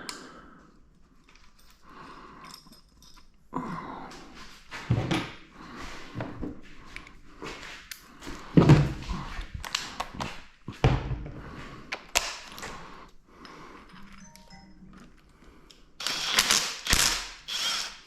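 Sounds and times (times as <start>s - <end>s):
hand tools and metal clanking: 1.2s - 3.4s.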